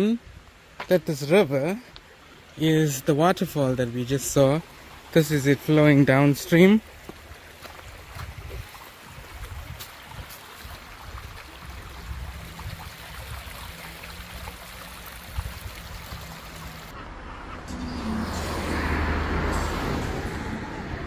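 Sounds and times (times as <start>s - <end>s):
river water running: 0.0s - 17.0s, 18.0s - 21.0s
vehicle passing: 16.5s - 21.0s
low hum: 16.6s - 21.0s.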